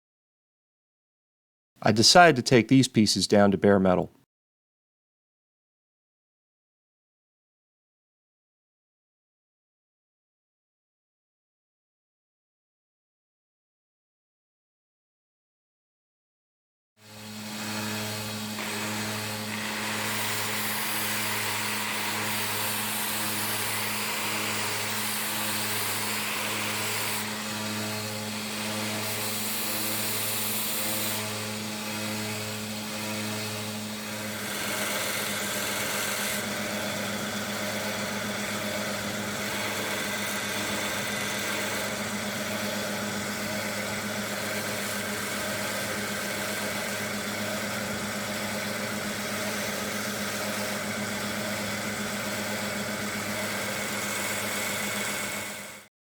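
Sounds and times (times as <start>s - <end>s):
power tool wheel grinding metal: 17.0s - 55.9s.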